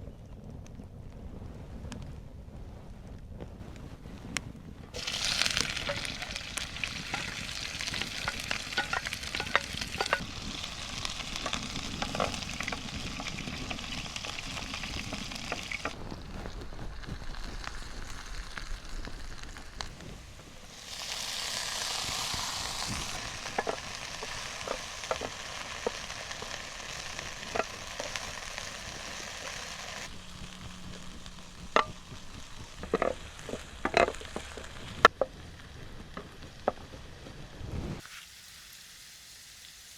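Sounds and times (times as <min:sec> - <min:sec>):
spatula scraping a pan: 0:05.0 - 0:16.0, 0:21.0 - 0:30.1
food sizzling in a frying pan: 0:05.0 - 0:39.9
utensil knocking on a pan: 0:05.6 - 0:10.3, 0:23.2 - 0:29.1.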